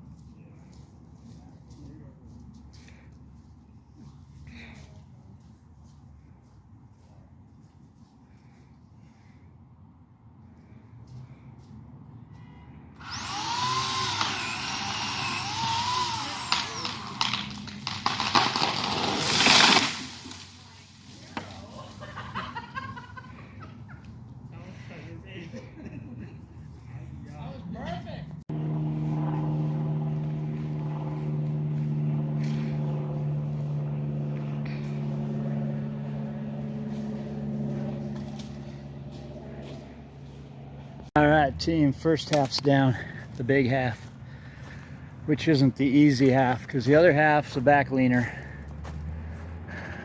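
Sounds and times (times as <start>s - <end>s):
engine humming steadily: 0.0s - 50.0s
chainsaw cutting wood: 13.0s - 20.5s
sharp wood cracks: 13.3s - 20.7s.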